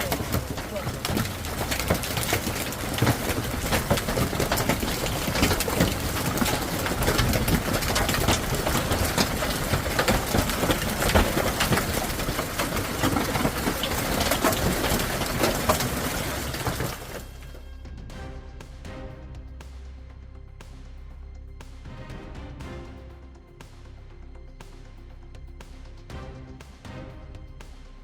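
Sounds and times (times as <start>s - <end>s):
hailstones clattering on hard surfaces: 0.0s - 17.6s.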